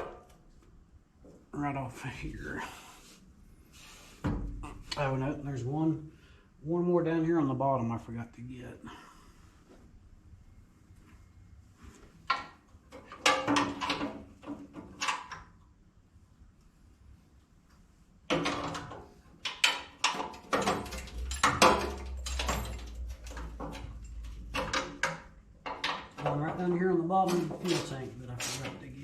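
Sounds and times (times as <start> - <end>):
hand tools clanking on metal: 18.4 - 28.9.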